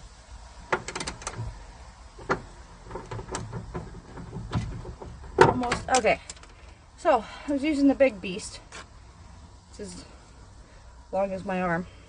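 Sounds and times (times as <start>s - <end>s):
socket ratchet clicking: 0.7s - 1.5s.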